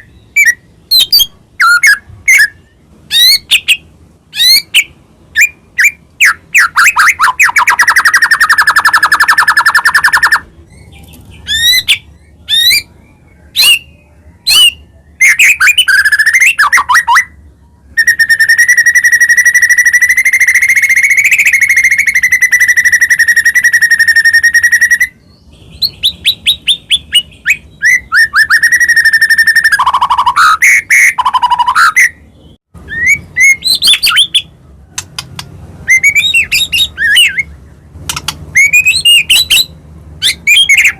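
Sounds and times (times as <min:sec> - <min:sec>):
songbird singing whistled phrases: 0:00.0 - 0:34.5, 0:35.2 - 0:40.9.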